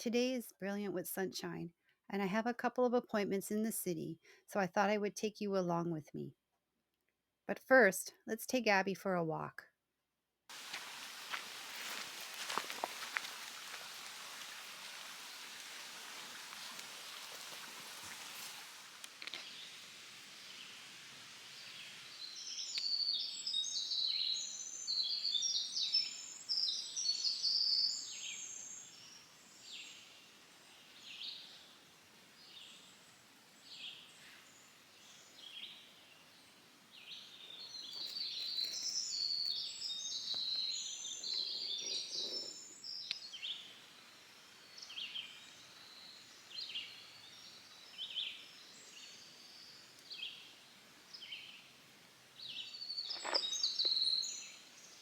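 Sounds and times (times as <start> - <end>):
soft hiss: 10.5 - 41.4, 42.0 - 55.0
small birds chirping: 10.6 - 51.7, 52.4 - 55.0.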